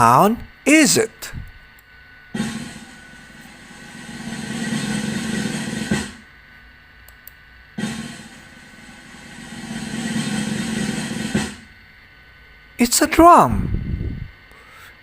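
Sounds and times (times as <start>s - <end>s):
drum rolls ending on a hit: 2.4s - 6.3s, 7.8s - 11.8s.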